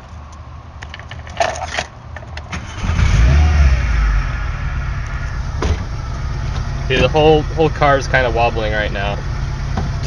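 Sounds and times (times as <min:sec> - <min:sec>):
car engine rough idle: 0:02.8 - 0:10.0.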